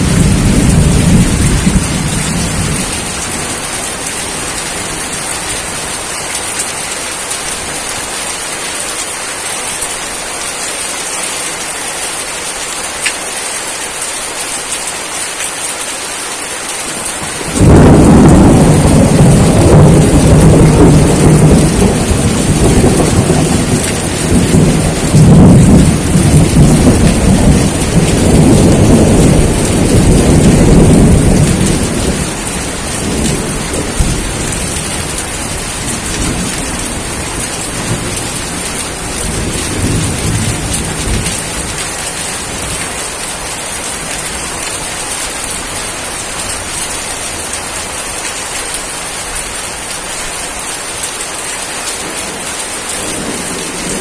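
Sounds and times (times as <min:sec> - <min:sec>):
thunder rumbling: 0:00.0 - 0:05.9, 0:17.2 - 0:43.4
heavy rain falling: 0:00.0 - 0:54.0.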